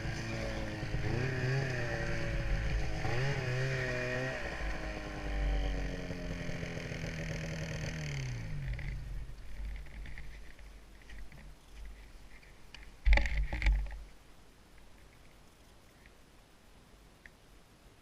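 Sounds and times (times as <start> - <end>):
snowmobile engine running: 0.0 - 9.2.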